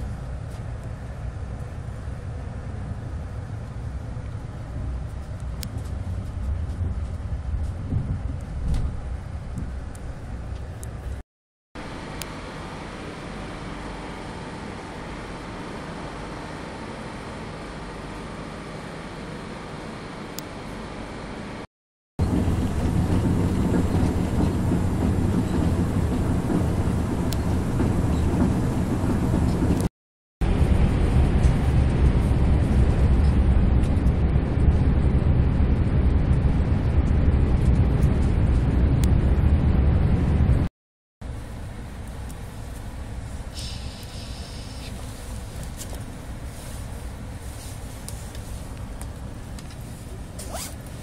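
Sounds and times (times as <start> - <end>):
train rumble inside cabin: 0.0 - 11.2, 22.2 - 51.0.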